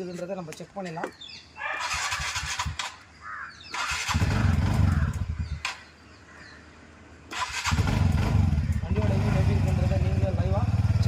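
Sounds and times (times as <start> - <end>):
scooter engine revving and idling: 3.8 - 5.6, 7.4 - 11.0.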